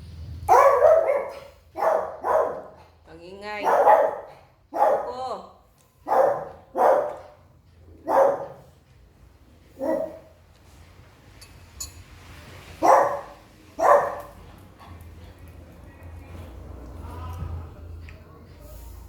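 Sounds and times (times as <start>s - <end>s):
dog barking: 0.5s - 3.0s, 3.6s - 5.2s, 6.0s - 7.4s, 8.0s - 8.7s, 9.8s - 10.3s, 12.8s - 14.4s.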